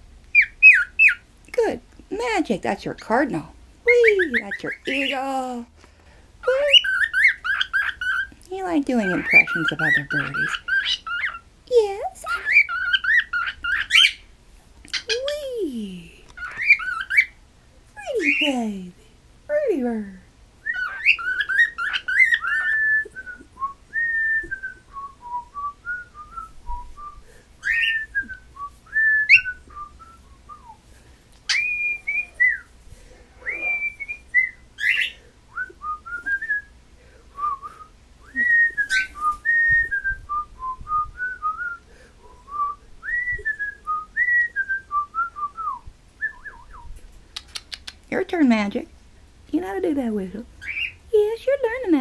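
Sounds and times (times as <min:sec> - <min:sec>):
cockatiel whistling: 0:00.3 - 0:01.2, 0:06.7 - 0:08.3, 0:09.0 - 0:11.4, 0:12.3 - 0:14.2, 0:16.4 - 0:17.3, 0:20.6 - 0:30.8, 0:31.5 - 0:32.7, 0:33.4 - 0:36.7, 0:37.4 - 0:41.8, 0:50.6 - 0:51.0.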